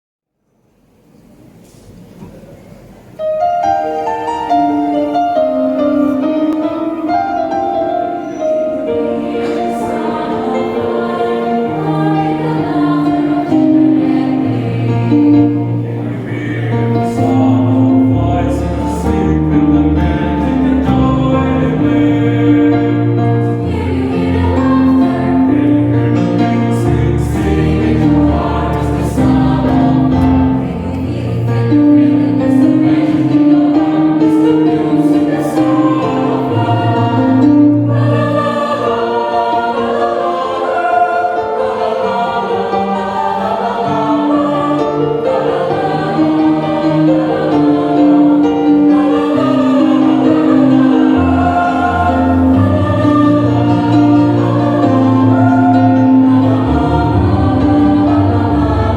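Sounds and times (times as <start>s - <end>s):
church choir singing a hymn: 3.1s - 58.9s.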